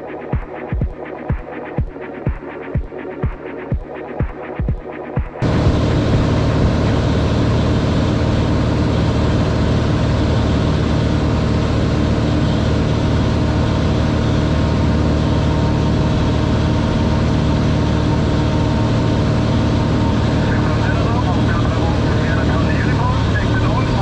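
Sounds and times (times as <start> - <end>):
light aircraft engine droning: 5.4 - 24.0.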